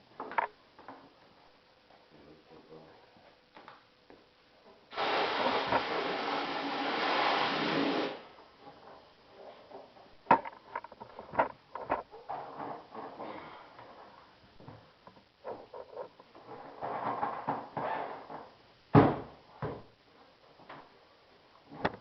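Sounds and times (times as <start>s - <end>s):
loud steady hiss: 4.9s - 8.3s.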